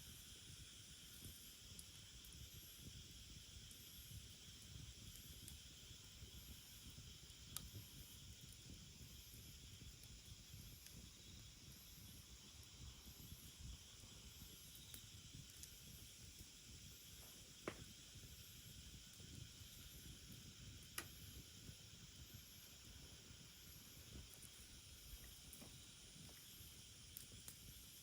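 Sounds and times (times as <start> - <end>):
wood fire burning: 0.0 - 28.0
firewood popping: 17.2 - 18.0.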